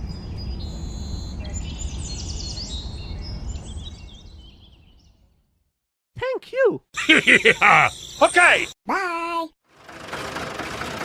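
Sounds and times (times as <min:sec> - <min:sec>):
birds chirping and singing: 0:00.1 - 0:05.2, 0:07.0 - 0:08.8.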